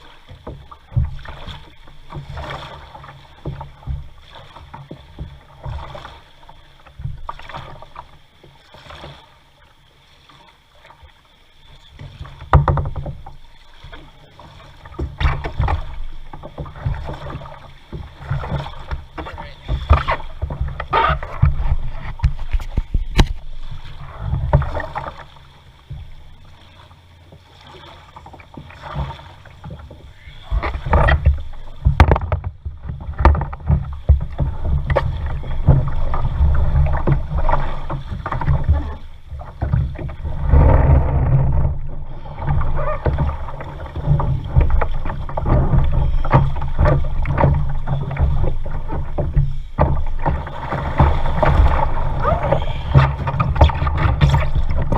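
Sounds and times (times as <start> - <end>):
paddle splashing in water: 0.0 - 54.9
low rumble on microphone: 27.7 - 54.9
sharp knocks: 31.8 - 32.5.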